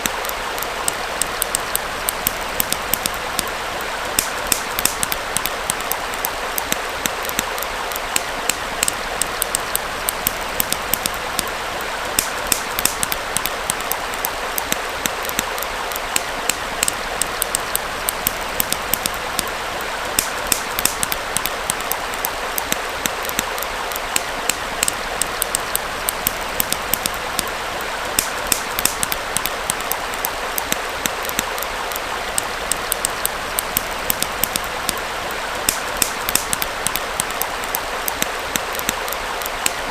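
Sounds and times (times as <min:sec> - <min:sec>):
campfire crackling and popping: 0:00.0 - 0:39.9
stream flowing: 0:00.0 - 0:39.9.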